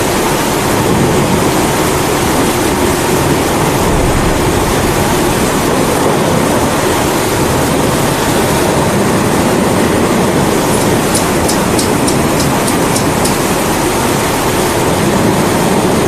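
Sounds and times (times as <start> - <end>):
rain: 0.0 - 16.0
kerosene stove burner roaring: 9.9 - 15.0.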